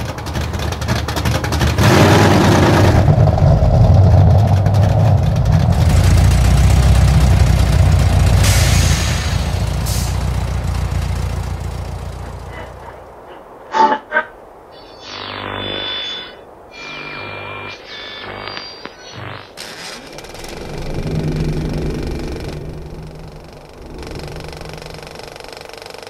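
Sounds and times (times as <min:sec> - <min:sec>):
car engine running: 0:00.0 - 0:13.2, 0:20.0 - 0:26.0.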